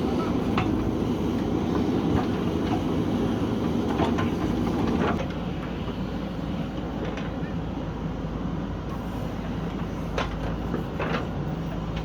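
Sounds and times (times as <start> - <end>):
diesel engine running: 0.0 - 6.8.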